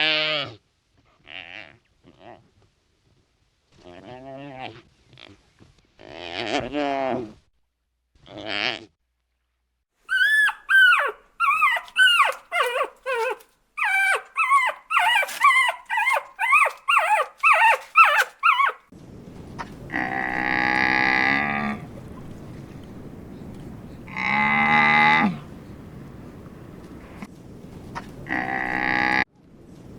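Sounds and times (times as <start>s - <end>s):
short high animal calls: 10.1s - 18.8s
cattle mooing: 19.9s - 23.0s, 24.0s - 27.2s, 28.2s - 29.2s.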